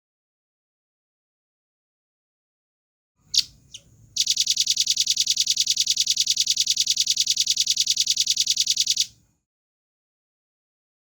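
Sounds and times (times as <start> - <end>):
nuthatch singing: 3.3 - 9.1.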